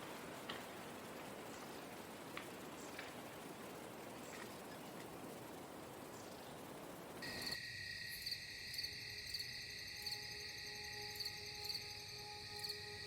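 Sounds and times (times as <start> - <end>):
soft breeze rush: 0.0 - 7.5
insects chirring: 0.0 - 13.0
faint sustained tones: 7.2 - 13.0.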